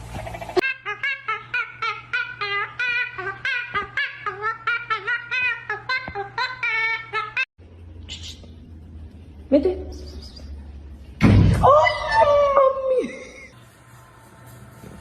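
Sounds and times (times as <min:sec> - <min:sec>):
high-pitched vocal calls: 0:00.2 - 0:08.7.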